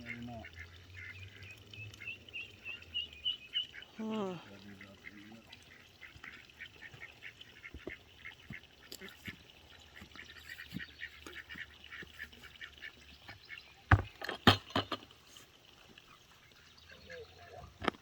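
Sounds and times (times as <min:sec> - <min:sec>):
ducklings peeping: 0:00.0 - 0:04.0
ducks quacking: 0:00.0 - 0:13.0.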